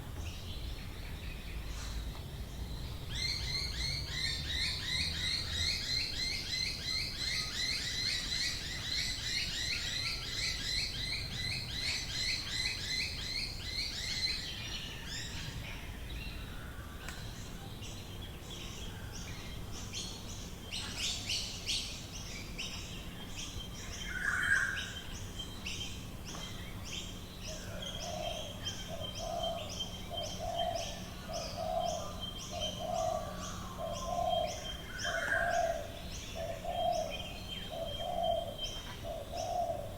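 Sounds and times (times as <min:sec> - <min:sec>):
birds chattering: 0:26.3 - 0:39.9
dove cooing: 0:27.7 - 0:39.9.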